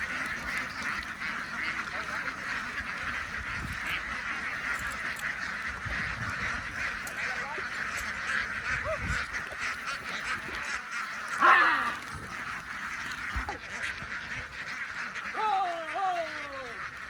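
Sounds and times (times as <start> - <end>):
flock of ducks quacking: 0.0 - 17.0.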